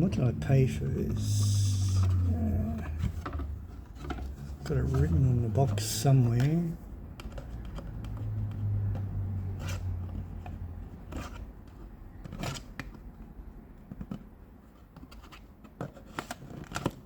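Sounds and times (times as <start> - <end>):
cardboard box being handled: 0.0 - 7.8
low steady hum: 0.0 - 15.1.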